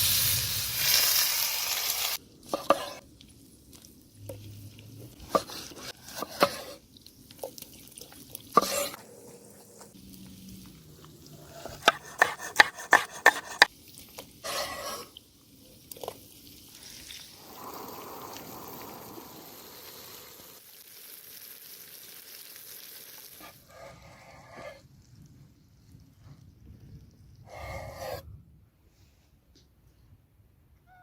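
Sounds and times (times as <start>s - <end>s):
steak sizzling in a pan: 0.0s - 5.4s, 10.1s - 24.0s.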